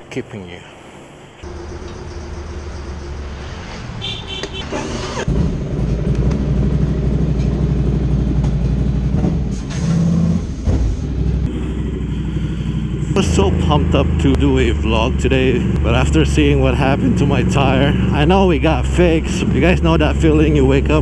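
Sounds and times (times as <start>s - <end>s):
motorcycle engine idling: 1.4s - 3.4s, 5.7s - 9.2s, 11.5s - 19.1s.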